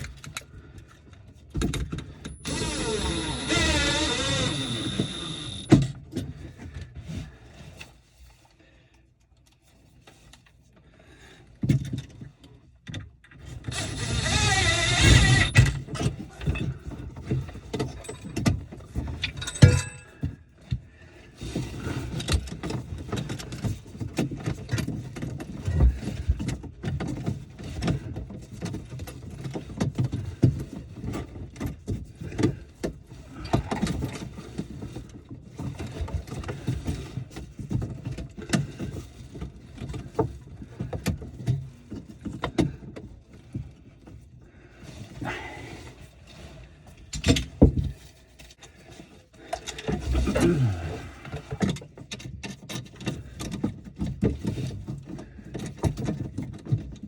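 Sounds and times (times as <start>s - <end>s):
tools and parts clattering: 15.0s - 20.8s.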